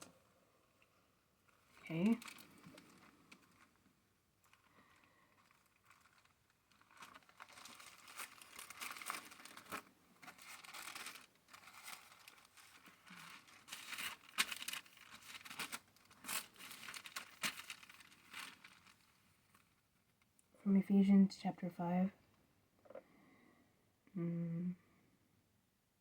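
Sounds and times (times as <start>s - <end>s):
paper rustling and crinkling: 1.5s - 3.8s, 4.4s - 19.8s.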